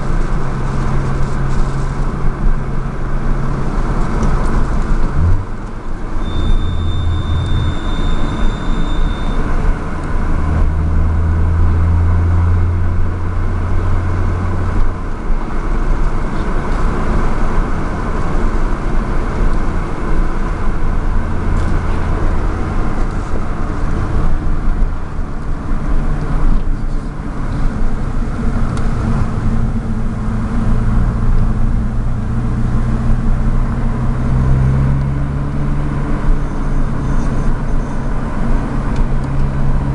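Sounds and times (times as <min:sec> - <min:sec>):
car engine drone: 0:00.0 - 0:39.9
road noise: 0:00.0 - 0:39.9
high whistle: 0:06.2 - 0:09.6.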